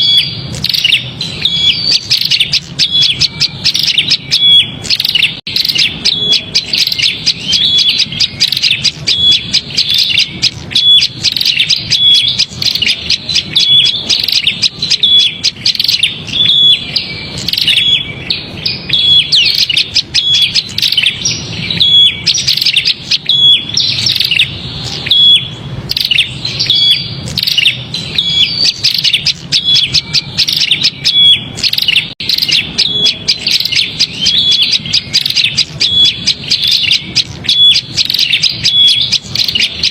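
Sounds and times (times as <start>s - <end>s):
birds chirping in alarm: 0.0s - 39.9s.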